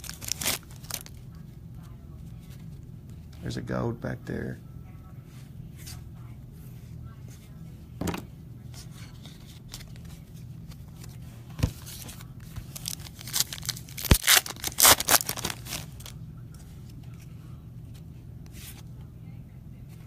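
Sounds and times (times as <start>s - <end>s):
wrapper tearing and crinkling: 0.0s - 1.2s, 12.6s - 16.1s
steady low hum: 0.0s - 20.0s.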